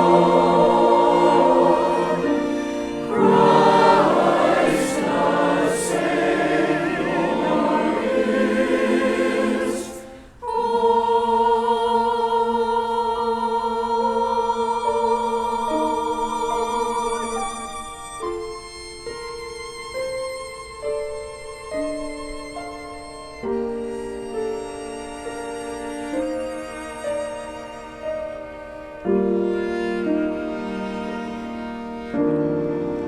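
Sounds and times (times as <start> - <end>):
orchestral accompaniment: 0.0 - 11.3, 15.1 - 33.0
choir singing: 0.0 - 18.6.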